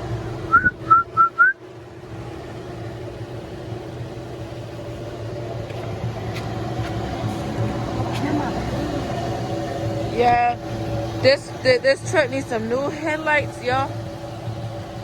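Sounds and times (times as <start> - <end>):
low mechanical hum: 0.0 - 15.0
high whistle-like chirps: 0.5 - 1.6.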